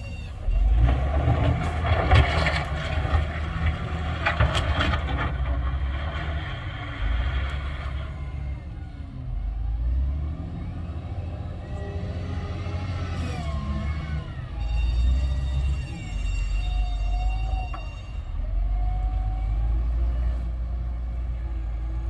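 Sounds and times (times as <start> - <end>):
diesel machinery engine rumble: 0.0 - 22.0
rough clattering: 0.6 - 8.0.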